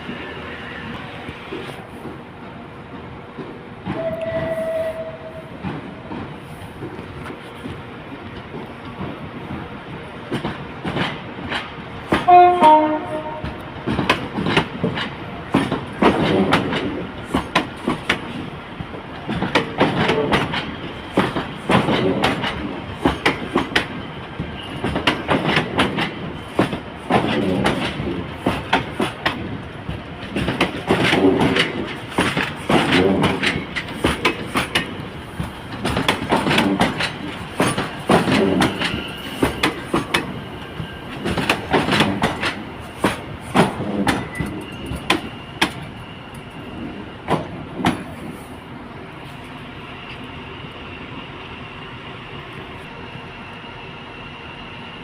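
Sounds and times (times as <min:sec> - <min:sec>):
train wheels clicking over rail joints: 0:01.2 - 0:48.5
train horn: 0:04.0 - 0:05.6, 0:12.2 - 0:13.6.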